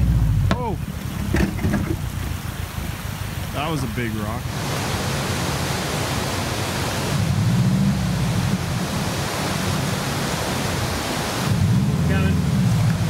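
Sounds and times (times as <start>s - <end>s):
car engine running low: 0.0s - 13.0s
steady rushing hiss: 0.0s - 13.0s
tyres crawling over loose rocks: 0.5s - 4.4s.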